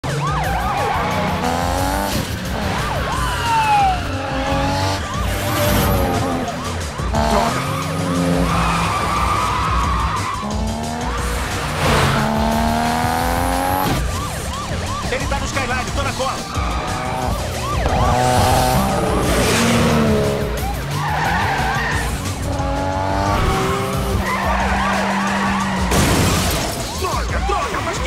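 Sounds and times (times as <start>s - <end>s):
car engines revving: 0.0s - 28.0s
tyres squealing and skidding: 0.1s - 28.0s.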